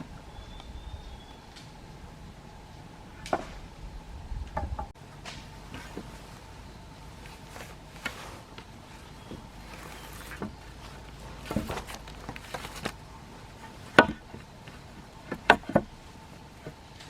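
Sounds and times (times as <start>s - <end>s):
sharp knocks: 13.9s - 14.4s.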